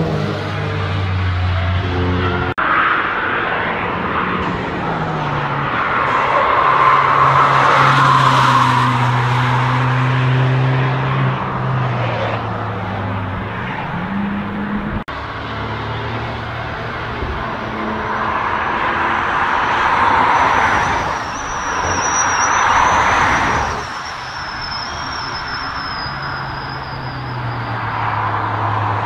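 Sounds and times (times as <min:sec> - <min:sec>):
car engine approaching: 0:00.0 - 0:22.0.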